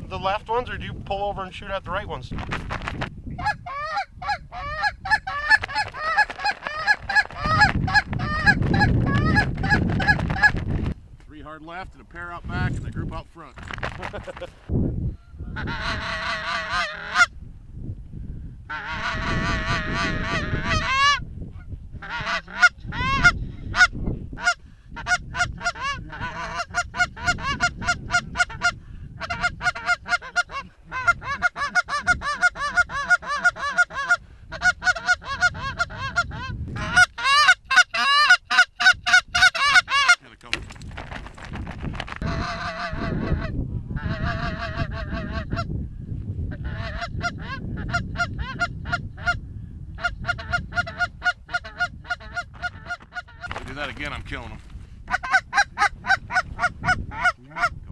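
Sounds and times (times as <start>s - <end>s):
goose calls honking and clucking: 3.4s - 10.7s, 15.5s - 17.3s, 18.7s - 21.2s, 22.0s - 40.3s, 42.2s - 45.7s, 46.5s - 49.4s, 50.0s - 54.0s, 55.1s - 57.8s.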